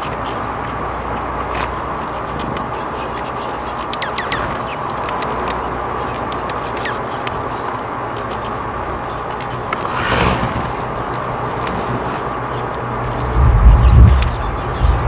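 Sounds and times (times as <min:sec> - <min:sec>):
light ticks and taps: 0:00.0 - 0:09.8
rustle: 0:00.0 - 0:15.0
small birds chirping: 0:00.0 - 0:15.0.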